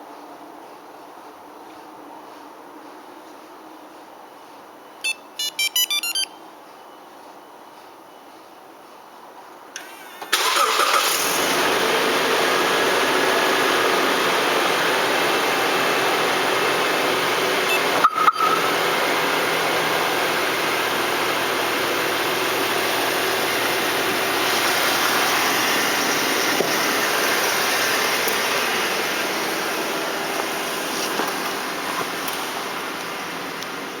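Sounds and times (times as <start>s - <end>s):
car engine starting and idling: 9.8s - 34.0s.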